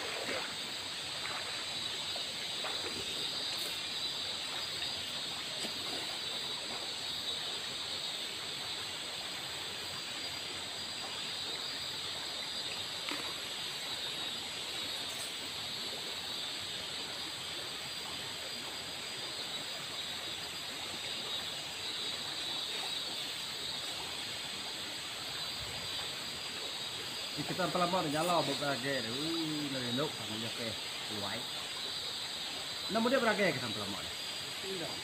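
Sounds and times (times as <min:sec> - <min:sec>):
shallow river rushing: 0:00.0 - 0:06.8.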